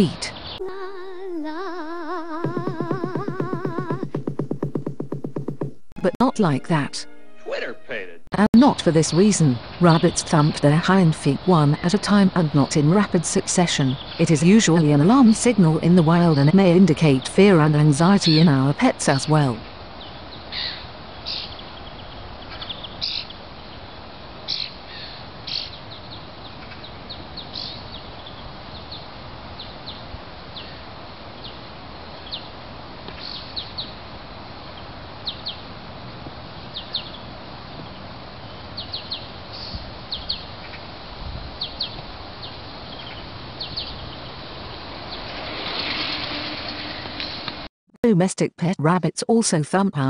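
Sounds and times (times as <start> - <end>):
small birds chirping: 0.0 - 0.6, 8.6 - 35.7, 36.6 - 45.4
steady background hiss: 0.0 - 4.0, 7.4 - 47.7.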